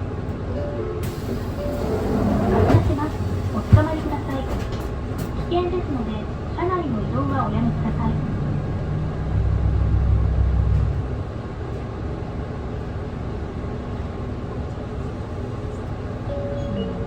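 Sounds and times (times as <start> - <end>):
bus diesel engine: 0.0 - 17.0
road noise: 7.1 - 13.1.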